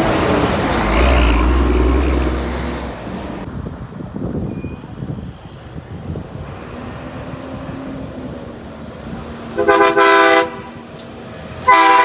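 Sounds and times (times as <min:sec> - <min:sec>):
rumble of engines and traffic: 0:00.0 - 0:12.0
truck air horn blast: 0:09.6 - 0:10.9, 0:11.6 - 0:12.0.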